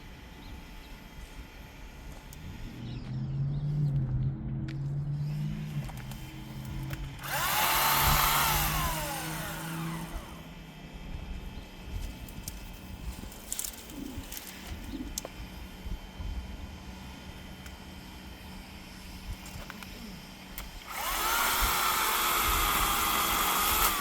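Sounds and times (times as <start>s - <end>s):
electric chainsaw whine: 5.0s - 24.0s.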